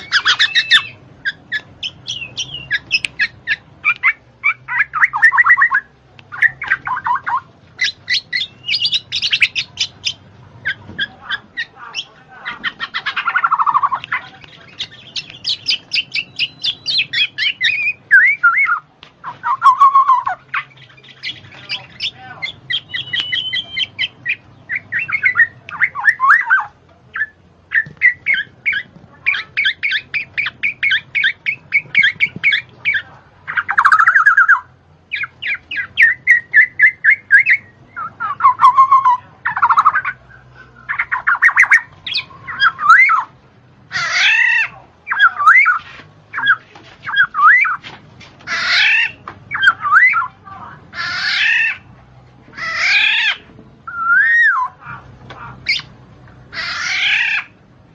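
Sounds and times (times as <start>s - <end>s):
bird chirping and squawking: 0.0s - 57.6s.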